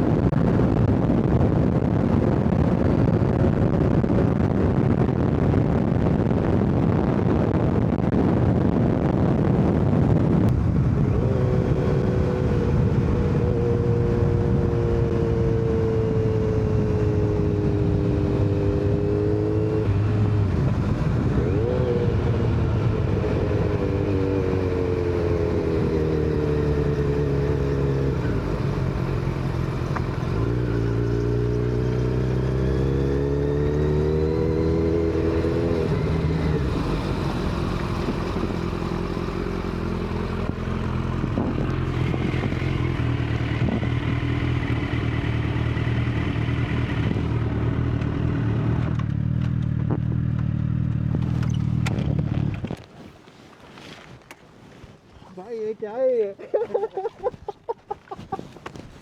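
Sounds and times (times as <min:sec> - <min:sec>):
wind rush: 0:00.0 - 0:31.8, 0:32.4 - 0:47.7
motorcycle engine running: 0:00.0 - 0:52.8.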